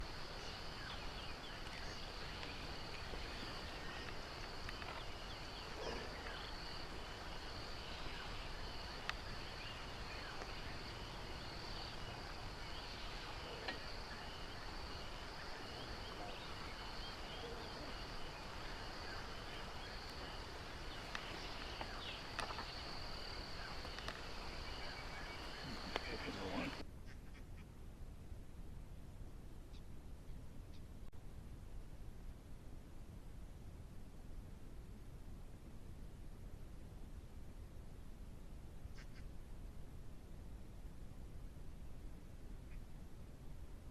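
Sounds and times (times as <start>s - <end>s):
crickets trilling: 0.0s - 26.8s
background hiss: 0.0s - 43.9s
faint clicks: 1.6s - 5.1s, 18.7s - 22.9s, 23.6s - 24.3s, 25.4s - 26.8s.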